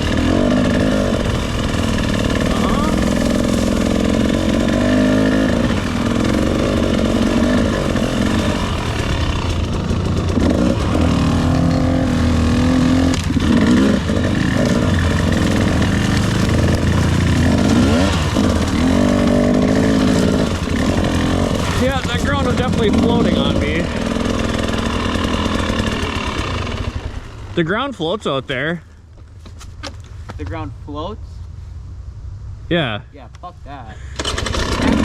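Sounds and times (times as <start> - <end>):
dirt bike engine revving: 0.0 - 28.7, 33.8 - 35.0.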